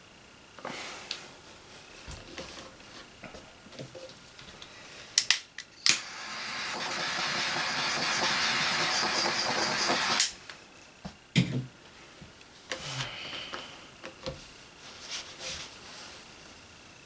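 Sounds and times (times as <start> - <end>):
pressurised gas hissing: 5.8 - 10.5.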